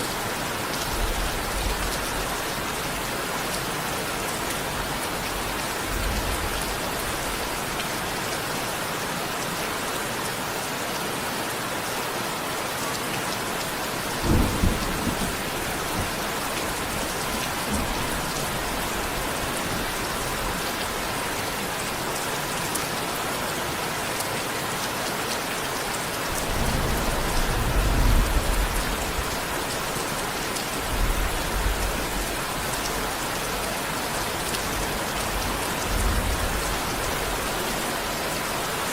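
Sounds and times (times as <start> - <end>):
steady rain falling: 0.0 - 38.9
low thunder rumbles: 14.0 - 21.1, 26.3 - 29.9.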